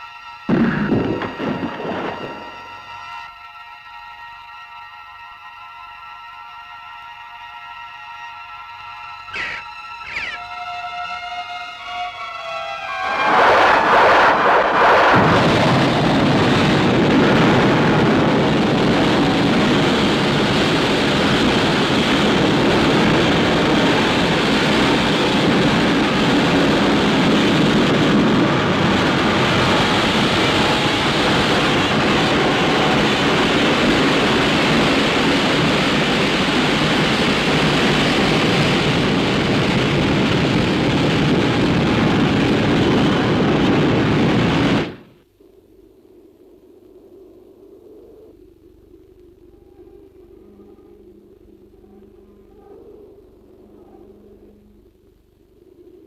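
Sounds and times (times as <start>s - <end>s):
loud rushing rumble: 0.5s - 2.8s, 12.9s - 45.0s.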